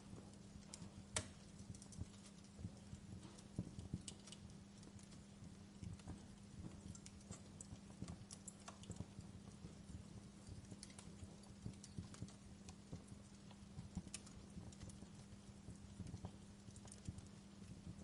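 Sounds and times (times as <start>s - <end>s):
steady low hum: 0.0s - 18.0s
wood fire crackling: 0.0s - 18.0s.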